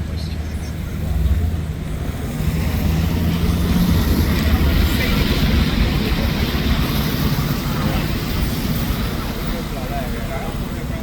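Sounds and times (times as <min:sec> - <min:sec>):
vehicle engine running close by: 0:00.0 - 0:09.8.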